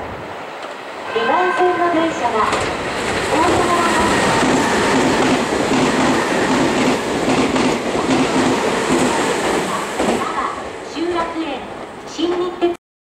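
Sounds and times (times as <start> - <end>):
train rushing past: 0.0 - 12.6
wheels clacking over rail joints: 2.3 - 10.4.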